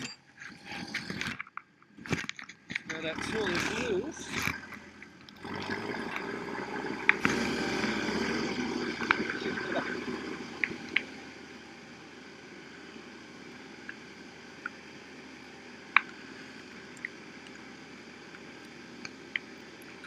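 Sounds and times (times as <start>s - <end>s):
background rumble: 2.0s - 20.0s.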